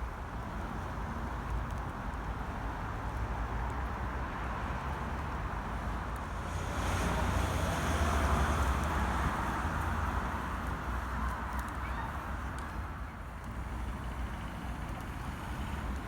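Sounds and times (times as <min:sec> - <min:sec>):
car passing by: 0:06.2 - 0:12.6.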